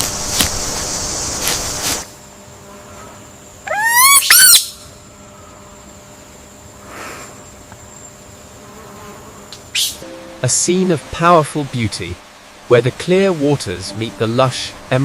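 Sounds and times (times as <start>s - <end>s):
steady high hiss: 0.0s - 15.0s
bird call with rising notes: 3.7s - 4.8s.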